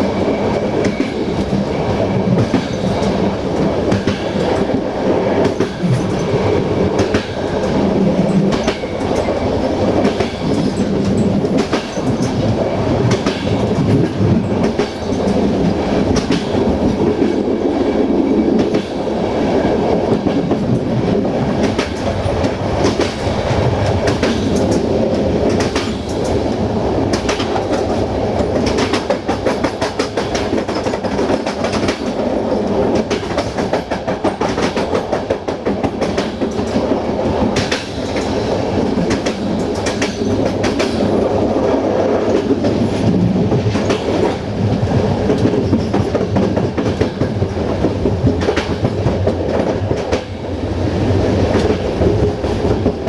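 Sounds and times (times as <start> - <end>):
train rumbling: 0.0 - 53.0
wheels clicking over rail joints: 10.0 - 17.4, 20.1 - 50.3.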